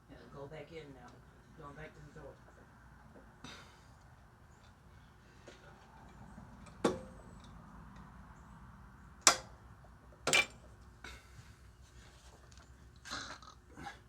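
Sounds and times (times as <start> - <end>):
hand tools clanking on metal: 10.3 - 10.6.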